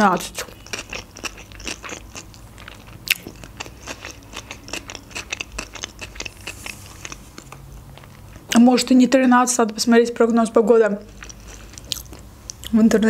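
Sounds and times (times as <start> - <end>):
chewing mouth clicks: 0.4 - 8.5.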